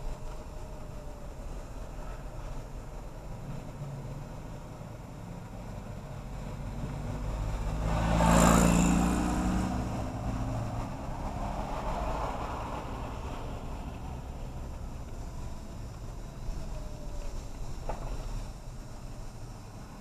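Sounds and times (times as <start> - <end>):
vehicle passing close by: 6.3 - 14.8.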